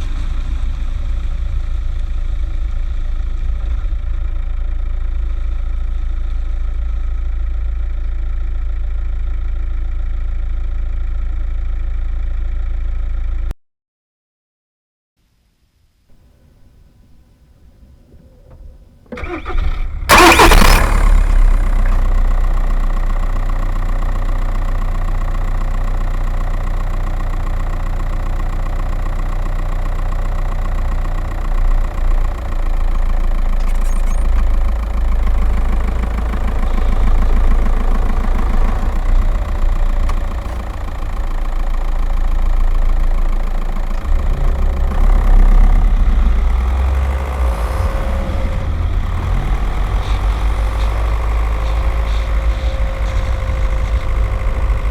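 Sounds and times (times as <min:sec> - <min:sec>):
diesel engine starting and idling: 0:00.0 - 0:13.5, 0:16.1 - 0:54.9.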